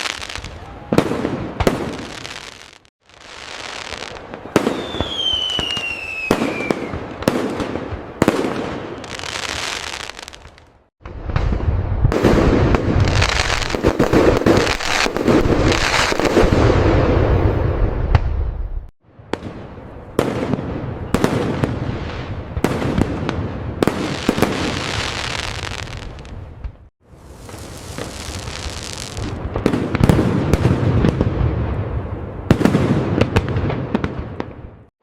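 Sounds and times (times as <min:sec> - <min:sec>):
fireworks bangs: 0:00.0 - 0:34.9
fireworks booms and crackling: 0:00.0 - 0:34.9
descending firework whistle: 0:04.4 - 0:07.1.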